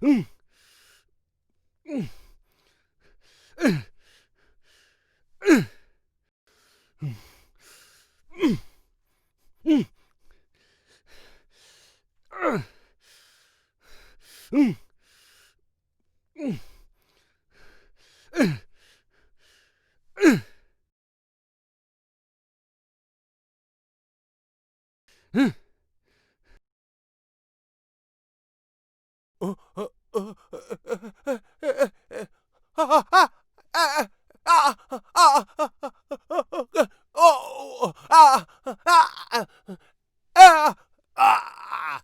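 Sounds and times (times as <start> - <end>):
man's fight grunts: 29.4 - 39.5, 40.4 - 42.0
breathy huffs: 29.4 - 42.0.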